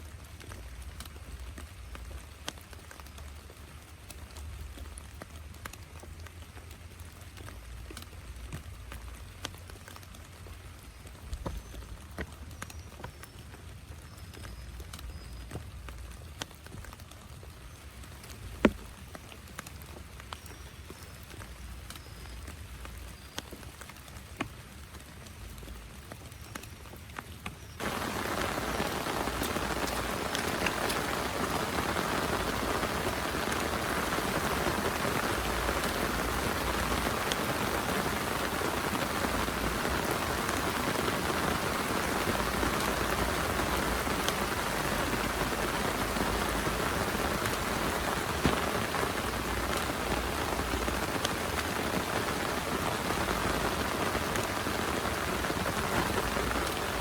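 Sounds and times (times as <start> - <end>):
heavy rain falling: 0.0 - 12.4, 27.8 - 57.0
raindrops ticking: 0.0 - 57.0.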